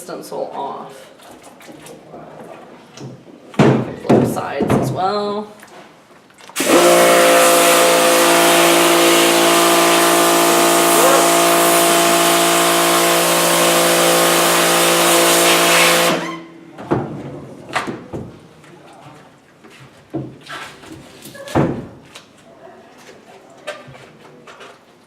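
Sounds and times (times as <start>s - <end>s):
pressure washer water hiss: 6.6s - 16.3s
pump hum: 6.6s - 16.6s.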